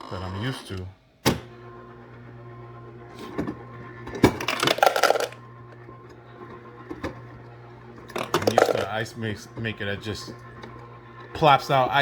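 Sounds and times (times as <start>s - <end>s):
refrigerator humming: 0.0s - 12.0s
ice rattling: 4.4s - 5.4s, 8.2s - 9.1s.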